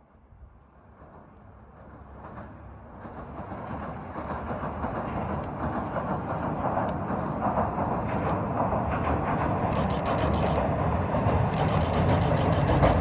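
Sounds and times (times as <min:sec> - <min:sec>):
diesel railcar on a bridge: 0:00.0 - 0:13.0
faint clicks: 0:11.6 - 0:13.0.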